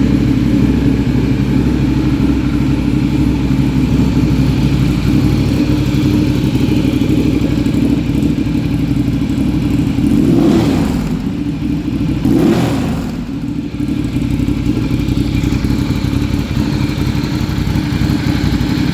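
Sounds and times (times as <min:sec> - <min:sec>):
motorcycle engine idling and blipping: 0:00.0 - 0:18.9.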